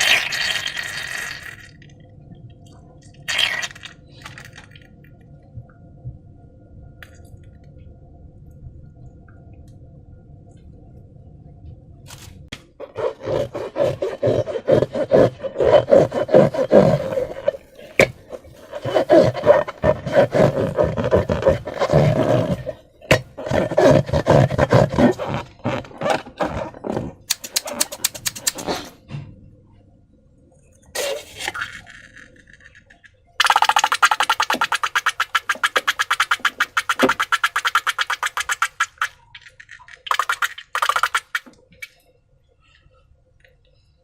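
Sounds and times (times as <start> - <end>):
rubbery creaking: 12.8 - 28.9
wet slime squelching: 12.8 - 29.0, 33.4 - 39.3, 39.9 - 41.5.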